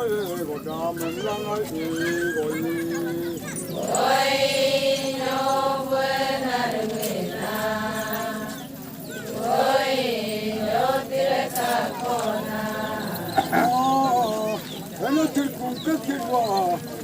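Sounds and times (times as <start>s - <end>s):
voices chanting long notes: 2.6s - 16.2s.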